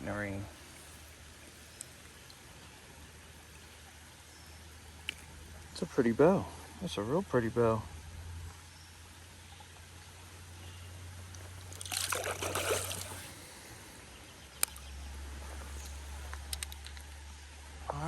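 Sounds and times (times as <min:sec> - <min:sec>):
running water: 0:09.0 - 0:13.8
water splashing: 0:11.3 - 0:13.5.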